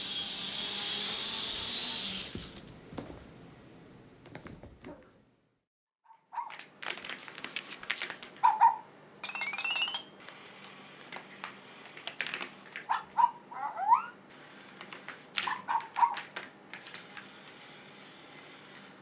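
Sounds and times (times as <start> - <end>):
small electric motor buzzing: 0.0 - 2.6, 17.2 - 19.0
high-pitched pet calls: 8.4 - 8.9, 12.9 - 14.2, 15.4 - 16.2.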